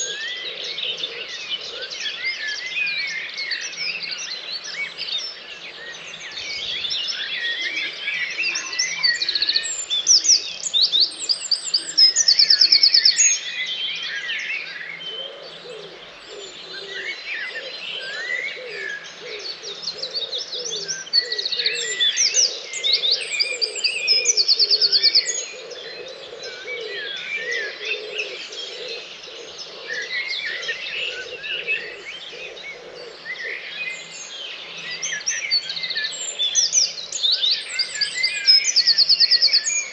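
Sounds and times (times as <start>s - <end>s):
many songbirds singing: 0.0s - 39.9s
nearby bird song with high trill: 0.0s - 39.9s.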